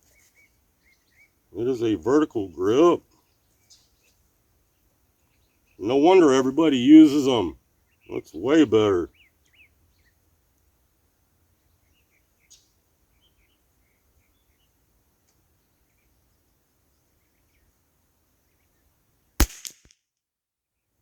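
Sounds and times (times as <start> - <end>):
faint bird chirps: 0.0 - 6.0
rifle shot with echo: 19.4 - 19.9.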